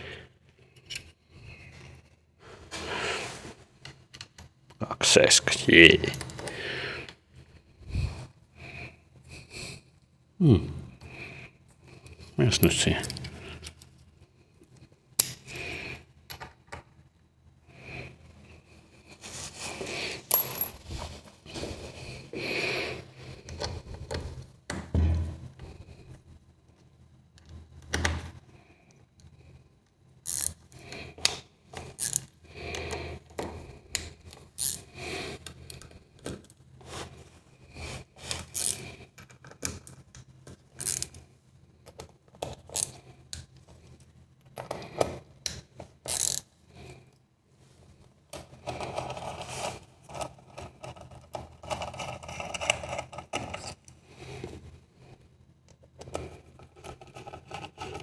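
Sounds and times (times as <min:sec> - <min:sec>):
metal scraping and rubbing: 0:56.6 - 0:58.0.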